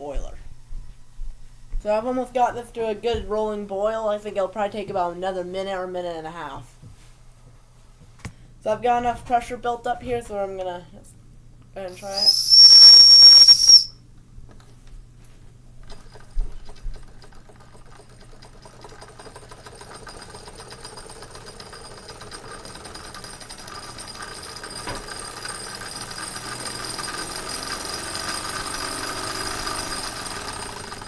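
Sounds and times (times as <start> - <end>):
small steam engine clattering: 12.0 - 13.9, 15.8 - 31.0.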